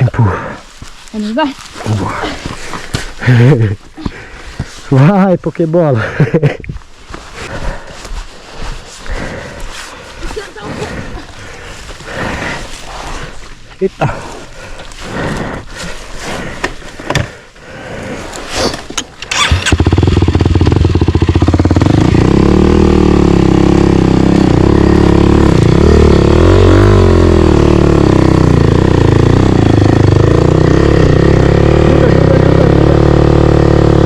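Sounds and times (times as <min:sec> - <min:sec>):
motorcycle engine starting and revving: 0:18.7 - 0:34.0.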